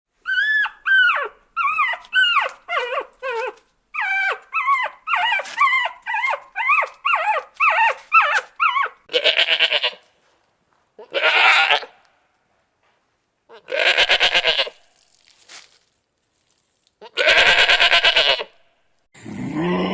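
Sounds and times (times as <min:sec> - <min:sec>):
dog yelping: 0:00.2 - 0:09.7
goat bleating: 0:09.1 - 0:10.0, 0:11.0 - 0:12.0, 0:13.5 - 0:14.9, 0:17.0 - 0:18.6.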